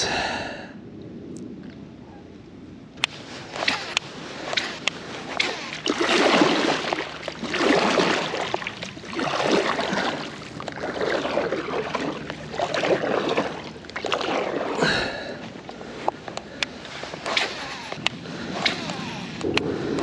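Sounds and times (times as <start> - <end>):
paddle splashing through water: 3.1 - 20.0.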